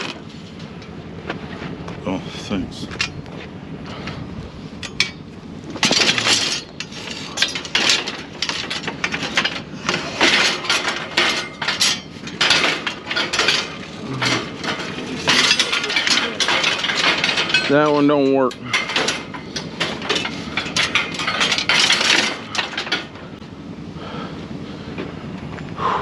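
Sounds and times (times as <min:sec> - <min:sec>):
scrap metal clanking: 0:03.9 - 0:23.4.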